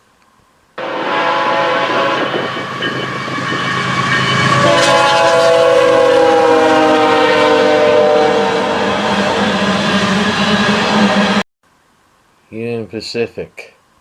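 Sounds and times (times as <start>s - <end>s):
train air horn: 0.8s - 2.7s, 3.8s - 11.4s
train cars rumbling: 0.8s - 11.4s.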